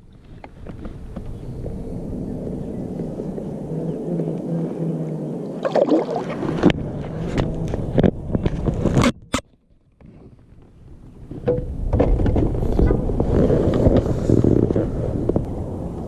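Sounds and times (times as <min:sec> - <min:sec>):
gear knocking and scraping in kayak: 0:06.3 - 0:15.5.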